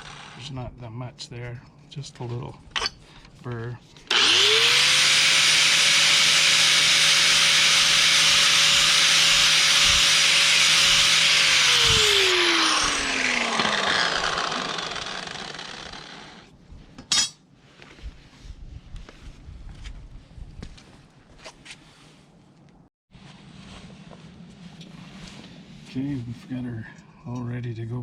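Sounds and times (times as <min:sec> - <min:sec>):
electric grinder grinding steel: 0:00.0 - 0:00.5, 0:04.1 - 0:16.5
grinder winding down: 0:00.0 - 0:00.5, 0:04.1 - 0:16.5.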